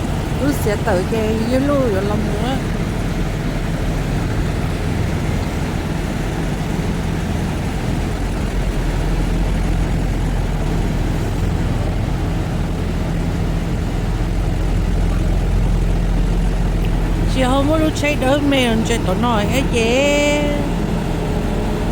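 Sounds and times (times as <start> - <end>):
road noise: 0.0 - 21.9
truck engine drone: 0.0 - 21.9.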